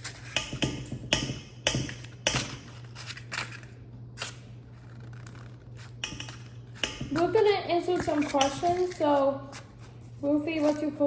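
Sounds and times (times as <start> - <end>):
steady low hum: 0.0 - 11.0
dishes and utensils clicking: 6.0 - 9.1.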